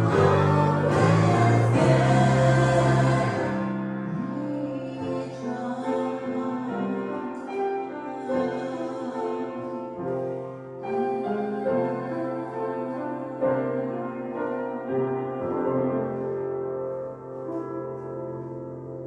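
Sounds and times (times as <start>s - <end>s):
slow keyboard music: 0.0s - 19.0s.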